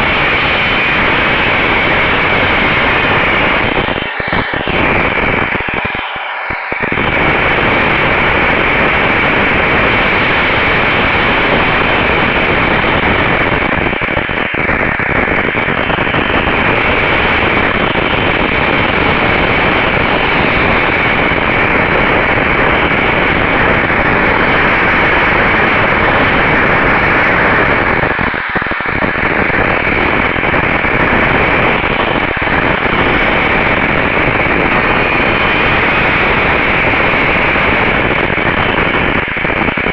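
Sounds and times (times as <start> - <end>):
static-like hiss: 0.0 - 39.9.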